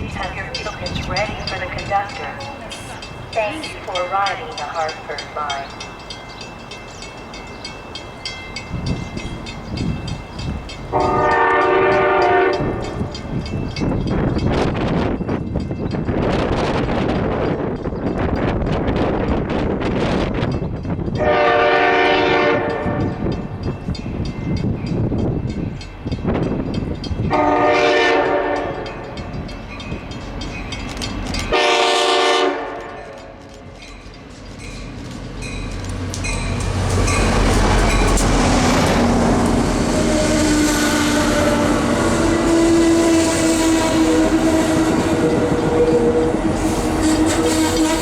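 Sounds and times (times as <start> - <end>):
wind buffeting microphone: 0.0 - 32.1, 33.7 - 48.0
train rumbling: 0.0 - 48.0
locomotive air horn blasts: 10.9 - 12.8, 21.2 - 23.0, 27.3 - 28.9, 31.5 - 33.1, 39.0 - 48.0.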